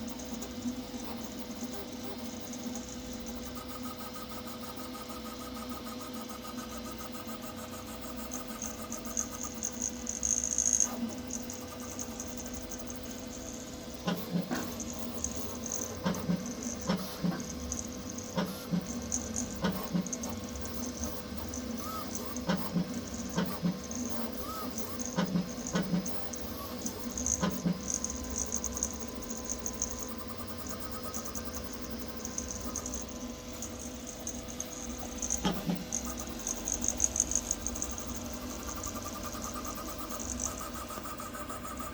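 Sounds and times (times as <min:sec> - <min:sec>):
steady printer hum: 0:00.0 - 0:41.9
stepper motors singing: 0:08.5 - 0:41.9.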